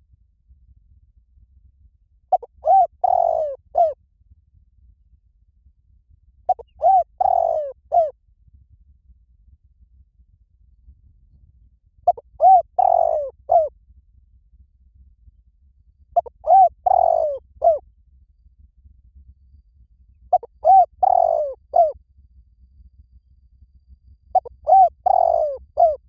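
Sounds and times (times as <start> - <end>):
dove cooing: 2.3 - 4.0, 6.5 - 8.1, 12.1 - 13.7, 16.2 - 17.8, 20.3 - 22.0, 24.4 - 26.0.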